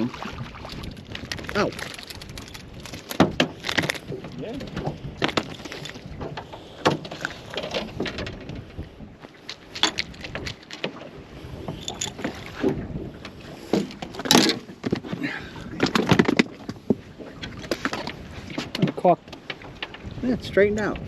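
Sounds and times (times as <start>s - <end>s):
knocks and thumps on boat: 0.0s - 21.0s
water slapping boat hull: 0.0s - 21.0s.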